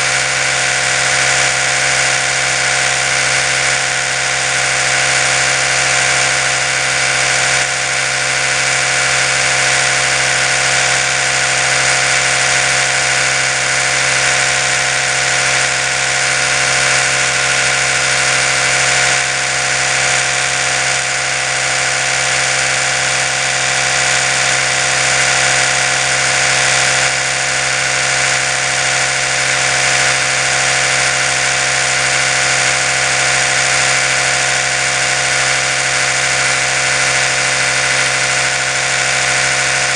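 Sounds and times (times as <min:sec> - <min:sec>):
electric toothbrush motor hum: 0:00.0 - 0:39.9.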